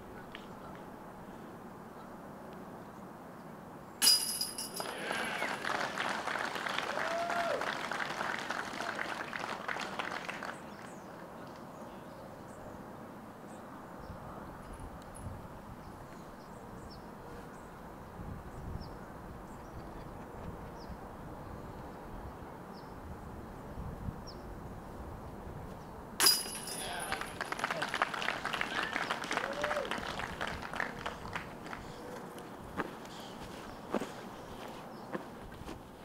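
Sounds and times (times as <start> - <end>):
loud metallic clash: 4.0 - 4.8, 26.2 - 27.0.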